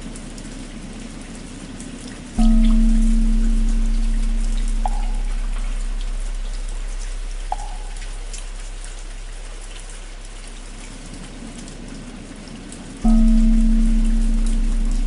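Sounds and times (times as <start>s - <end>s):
rain pattering: 0.0s - 15.0s
deep bell ringing: 2.4s - 10.8s, 13.0s - 15.0s.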